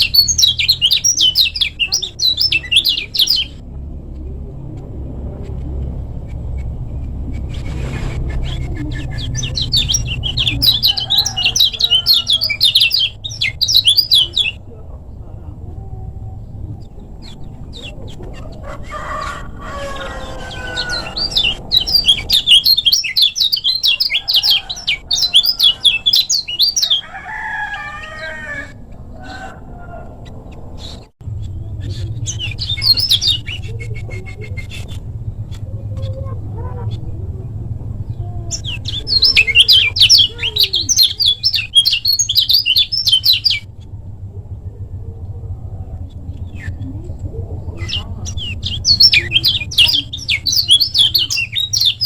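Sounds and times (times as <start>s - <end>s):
songbird singing whistled notes: 0.0s - 3.6s, 8.4s - 14.6s, 20.6s - 27.0s, 38.5s - 43.7s, 47.8s - 52.0s
low steady hum: 0.0s - 52.0s.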